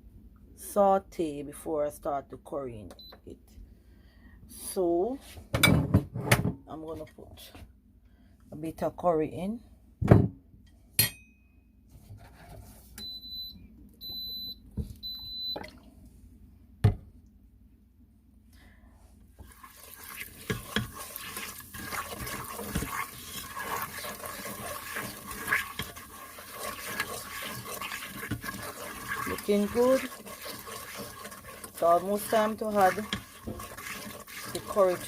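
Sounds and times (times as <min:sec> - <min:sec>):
oil sizzling in a pot: 0:19.4 - 0:35.0.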